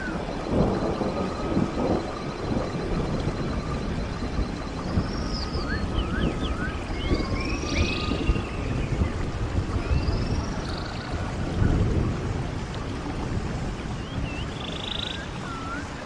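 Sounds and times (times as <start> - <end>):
stream water rushing: 0.0 - 16.0
birds singing: 4.7 - 11.3, 14.0 - 15.9.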